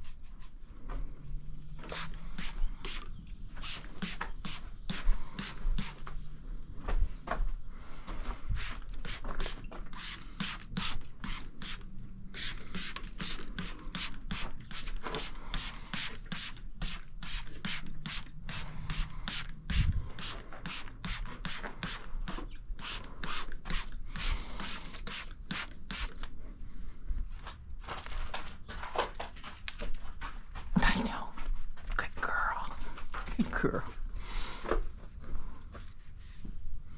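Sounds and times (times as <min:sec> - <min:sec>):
stiff brush strokes: 0:00.0 - 0:01.2, 0:01.8 - 0:06.1, 0:08.3 - 0:26.3.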